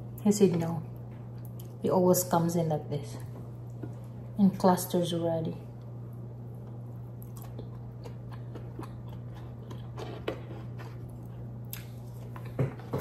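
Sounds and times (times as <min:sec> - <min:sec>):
steady low hum: 0:00.0 - 0:13.0
chewing and lip smacks: 0:01.4 - 0:01.8, 0:06.6 - 0:12.6.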